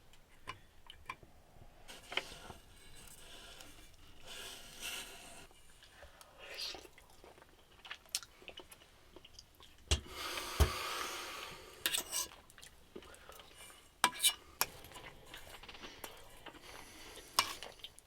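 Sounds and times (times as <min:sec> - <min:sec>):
person chewing and crunching: 0:06.6 - 0:09.8.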